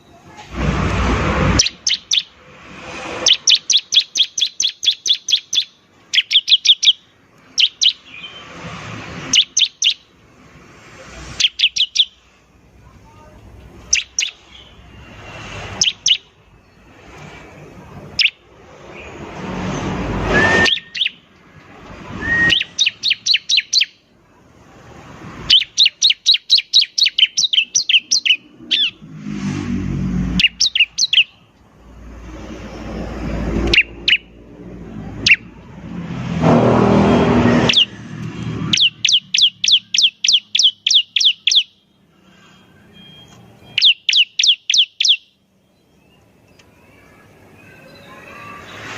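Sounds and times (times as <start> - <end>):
harsh rushing noise: 0.2 - 4.0, 8.0 - 12.8, 13.4 - 23.4, 28.4 - 39.4
bird singing sharp chip notes: 1.6 - 2.4, 3.2 - 8.5, 11.4 - 12.2, 15.7 - 16.9, 20.4 - 21.3, 22.2 - 24.0, 25.5 - 29.0, 30.4 - 31.4, 33.6 - 34.4, 37.5 - 38.0, 38.6 - 41.8, 43.0 - 48.7.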